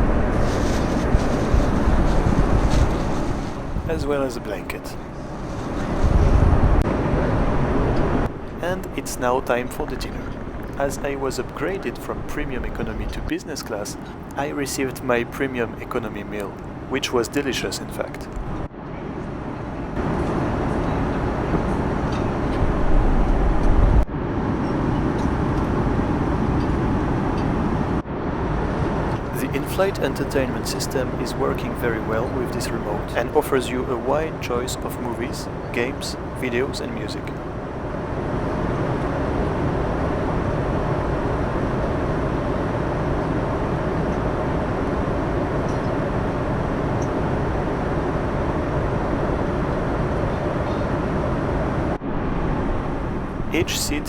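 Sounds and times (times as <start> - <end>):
airplane cabin noise: 0.0 - 54.0.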